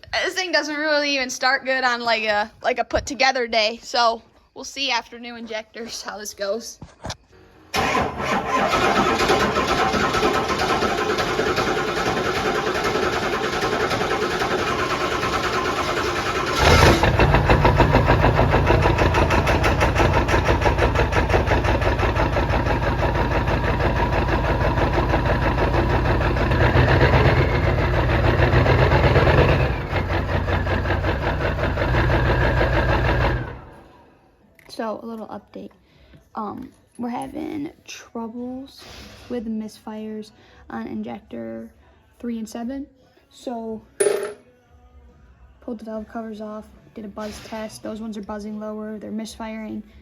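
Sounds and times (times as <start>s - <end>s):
engine cranking on starter: 7.7s - 33.9s
diesel engine running rough: 7.8s - 33.9s.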